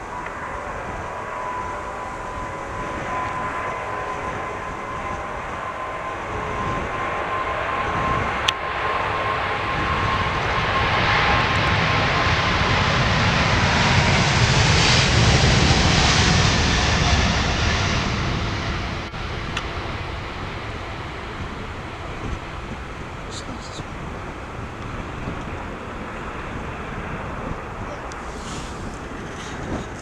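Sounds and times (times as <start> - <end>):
jet engine whine: 0.0 - 30.0
jet engines roaring: 0.0 - 30.0.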